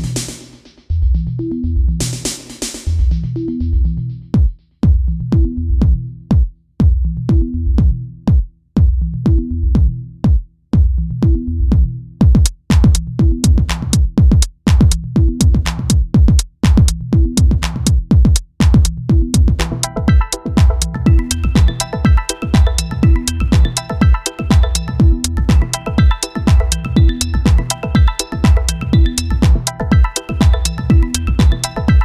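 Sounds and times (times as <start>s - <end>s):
drum-machine beat: 0.0s - 0.9s, 2.0s - 32.0s
repeating bass line: 11.0s - 16.0s, 18.7s - 32.0s.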